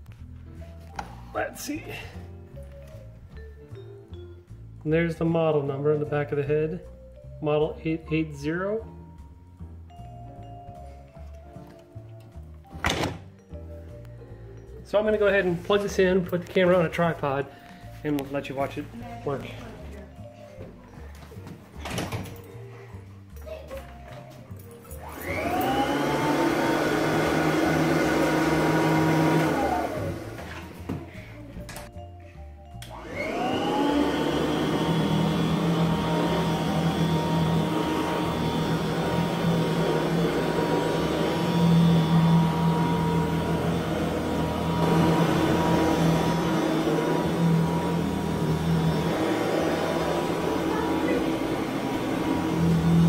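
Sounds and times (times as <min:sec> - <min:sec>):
vacuum cleaner motor whine: 0:25.0 - 0:31.0, 0:32.8 - 0:53.0.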